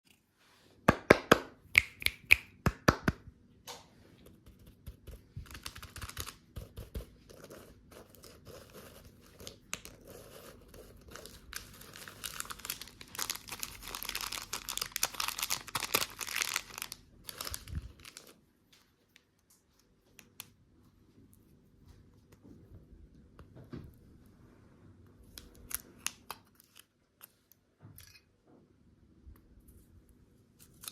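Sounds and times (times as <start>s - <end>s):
wrapper crinkling and tearing: 11.0s - 18.4s, 30.6s - 30.9s.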